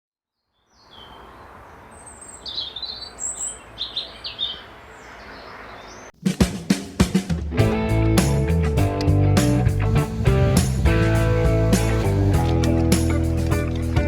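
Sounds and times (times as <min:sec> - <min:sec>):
birds chirping: 0:00.4 - 0:06.2
guitar music: 0:07.4 - 0:14.0.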